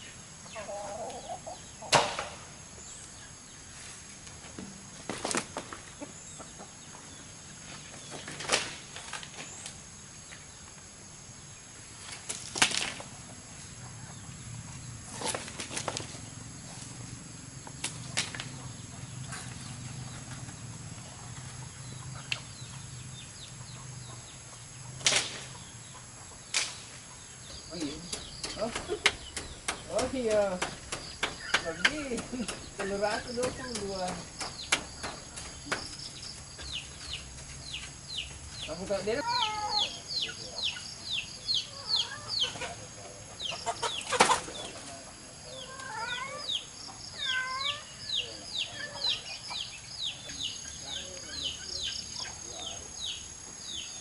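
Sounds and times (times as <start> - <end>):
chicks peeping: 0.1 - 2.0, 17.5 - 54.0
sharp knocks or rustles: 1.9 - 2.5, 27.8 - 38.0
wings flapping rustle: 5.0 - 6.0, 12.0 - 13.2, 15.1 - 17.0.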